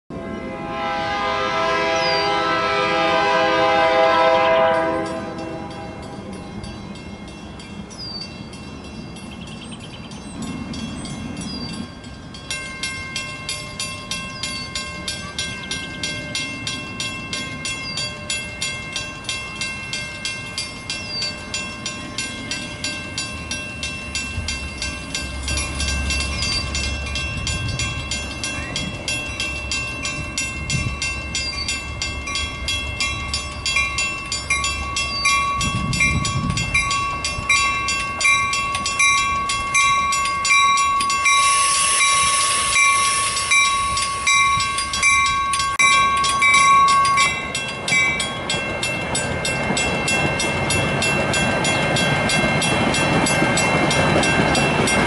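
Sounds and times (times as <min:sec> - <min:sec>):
train air horn chord: 0:00.1 - 0:06.1, 0:41.4 - 0:43.8
low train rumble: 0:00.1 - 0:55.0
bell ringing: 0:04.9 - 0:55.0.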